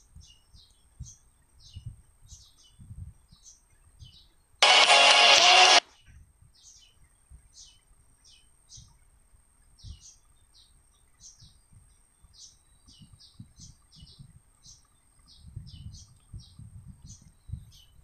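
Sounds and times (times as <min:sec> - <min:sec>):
loud burst of music: 0:04.6 - 0:05.8.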